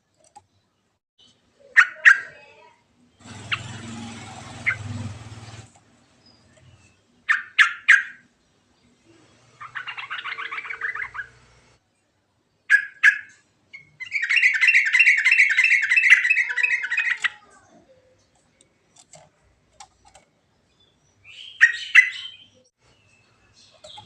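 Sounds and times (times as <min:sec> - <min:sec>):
bulbul singing: 0:09.6 - 0:11.6, 0:20.0 - 0:24.0.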